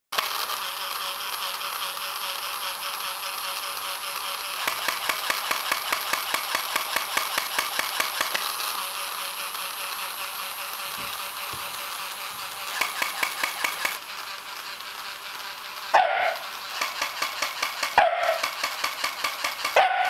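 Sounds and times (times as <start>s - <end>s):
toy electric motor whirring: 0.2s - 20.0s
rapid even clicking: 4.2s - 8.6s, 11.2s - 14.0s, 16.6s - 19.9s.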